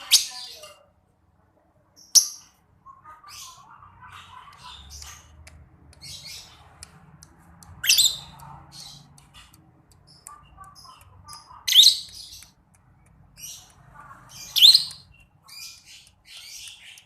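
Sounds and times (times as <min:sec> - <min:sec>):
lovebird chirping: 0:02.0 - 0:05.3, 0:07.6 - 0:17.0.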